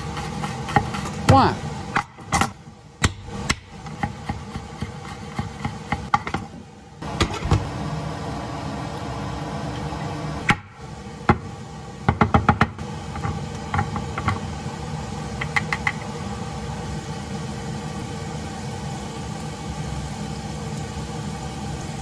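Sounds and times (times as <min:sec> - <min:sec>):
onion and garlic sizzling in pan: 0:00.0 - 0:02.0, 0:02.8 - 0:10.0, 0:12.8 - 0:22.0
knife chopping on wooden board: 0:03.0 - 0:06.4.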